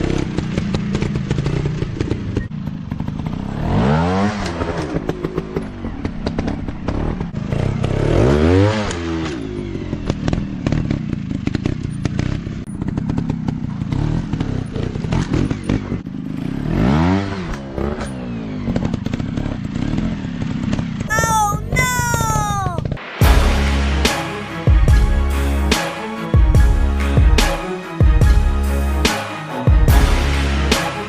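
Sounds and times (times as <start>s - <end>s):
dirt bike engine revving: 12.9s - 20.6s.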